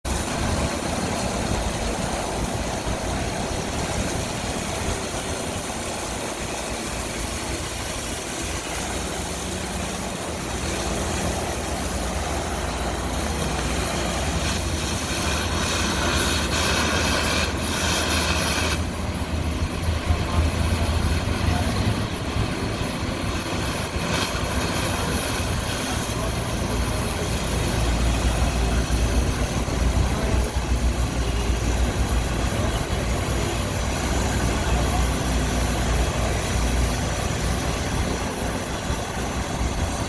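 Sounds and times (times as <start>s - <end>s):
machinery hiss and hum: 0.1s - 40.0s
harsh scratchy strokes: 10.6s - 18.9s.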